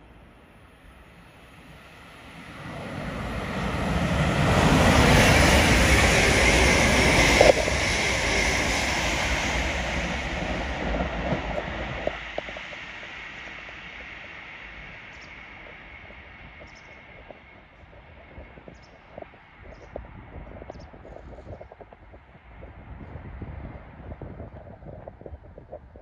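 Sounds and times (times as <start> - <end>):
passenger train passing: 0.0 - 18.1.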